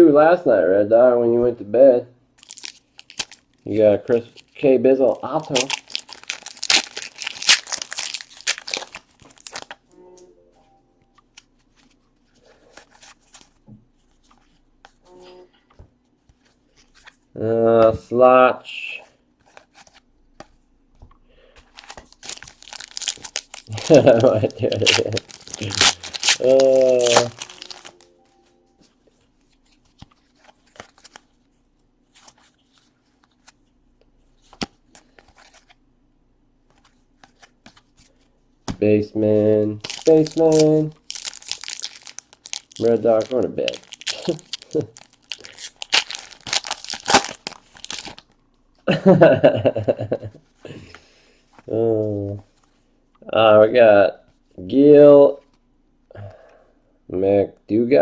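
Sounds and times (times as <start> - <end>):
card pack wrapper tearing: 2.4 - 3.5, 5.2 - 9.8, 21.7 - 28.0, 39.8 - 48.3.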